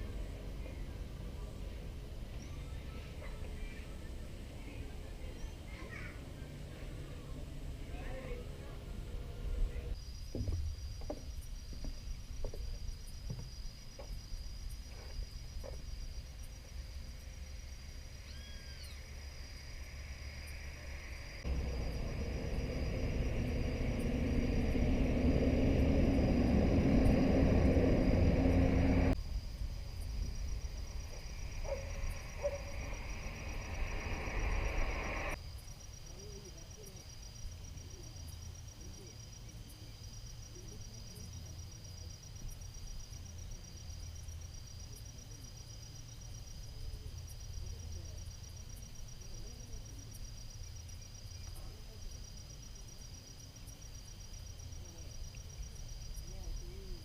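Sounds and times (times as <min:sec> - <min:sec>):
faint low calls: 0:00.0 - 0:10.0, 0:18.0 - 0:35.4
insects trilling: 0:00.0 - 0:57.0
motorcycle engine rumbling: 0:20.8 - 0:35.4.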